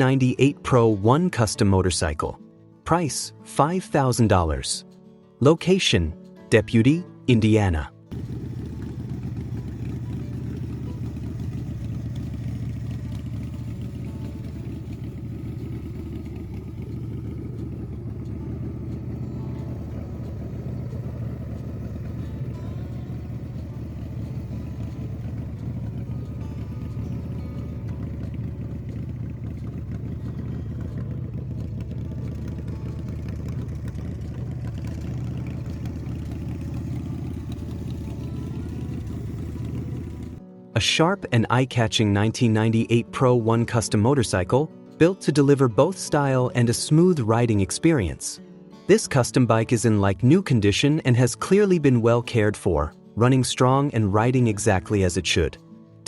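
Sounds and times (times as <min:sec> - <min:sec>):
motorcycle engine running: 0:08.1 - 0:40.4.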